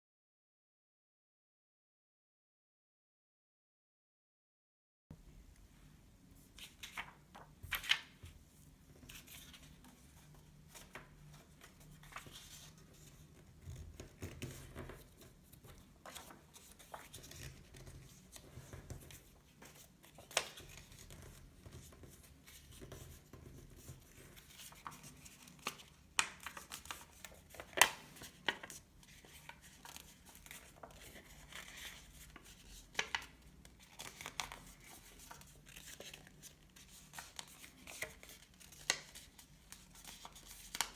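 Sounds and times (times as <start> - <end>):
paper crinkling and rustling: 6.5 - 40.9.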